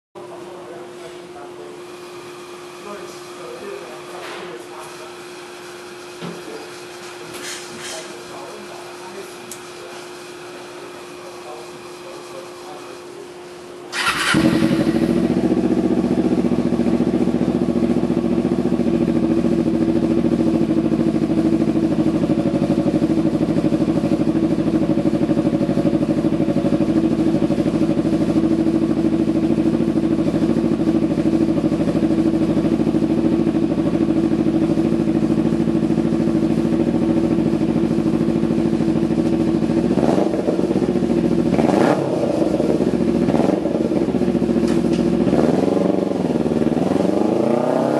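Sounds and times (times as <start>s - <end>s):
motorcycle engine starting and idling: 13.9s - 47.9s.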